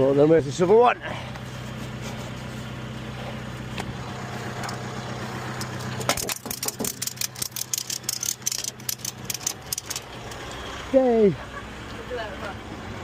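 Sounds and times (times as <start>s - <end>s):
vehicle engine idling: 0.0s - 13.0s
clicks and rattles: 5.6s - 10.4s.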